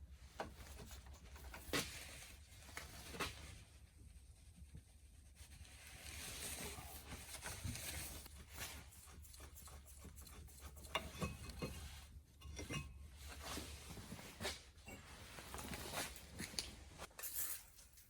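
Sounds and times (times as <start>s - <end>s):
hand tools clicking and knocking: 10.1s - 11.8s.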